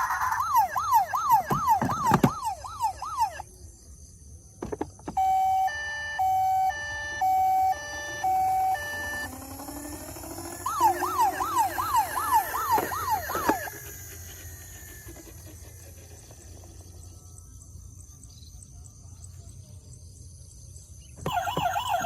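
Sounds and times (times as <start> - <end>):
toy electronic siren: 0.0 - 3.7, 5.1 - 17.5, 21.2 - 22.0.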